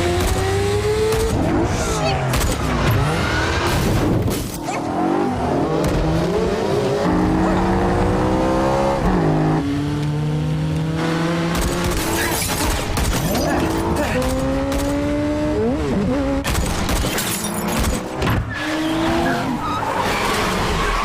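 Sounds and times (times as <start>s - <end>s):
car engines racing: 0.0s - 21.0s
tyres squealing and skidding: 1.5s - 3.9s, 12.0s - 14.2s, 18.3s - 21.0s.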